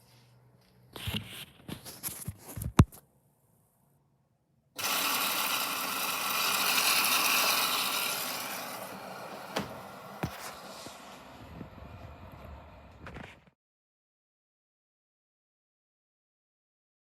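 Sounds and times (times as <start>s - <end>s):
washing machine rushing noise: 4.8s - 13.3s
washing machine clicks and knocks: 9.5s - 9.9s.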